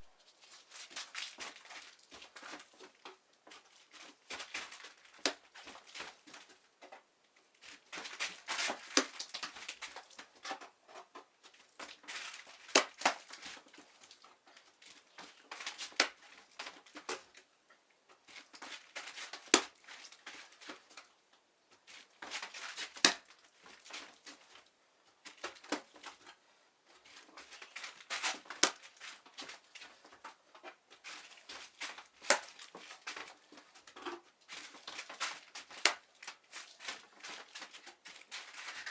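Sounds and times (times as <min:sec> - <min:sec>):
scraping and rustling: 0:27.0 - 0:38.9.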